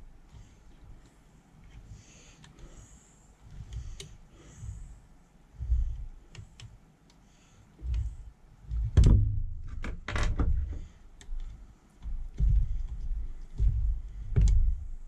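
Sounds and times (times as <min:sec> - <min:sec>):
low handling bumps: 0:03.5 - 0:06.3, 0:07.8 - 0:15.0.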